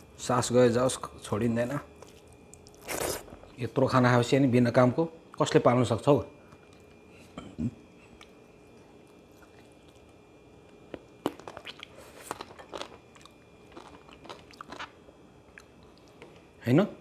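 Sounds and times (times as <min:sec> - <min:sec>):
person chewing food: 0:02.0 - 0:03.5, 0:06.5 - 0:16.4.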